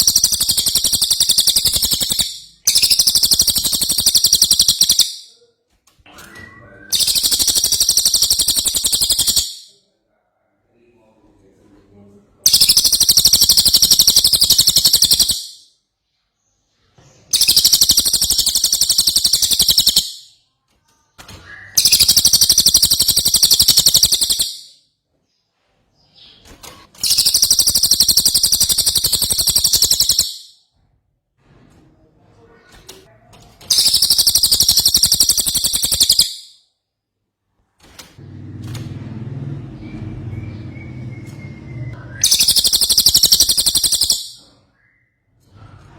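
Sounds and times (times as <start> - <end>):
bird chattering song: 0.0 - 5.4, 6.9 - 9.8, 12.4 - 15.6, 17.3 - 20.3, 21.5 - 24.8, 27.0 - 30.6, 33.7 - 36.6, 39.8 - 45.0.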